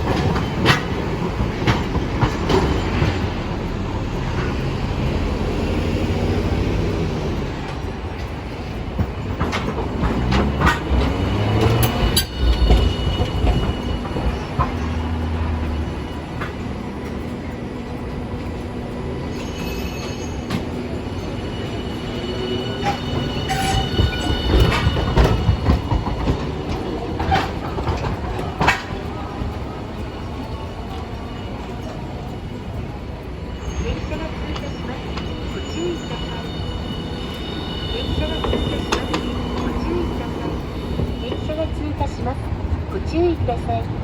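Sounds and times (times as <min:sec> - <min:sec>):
streetcar motor and wheel rumble: 0:00.0 - 0:44.0
high-pitched wheel squeal: 0:09.5 - 0:17.6, 0:19.2 - 0:28.9, 0:33.4 - 0:42.2.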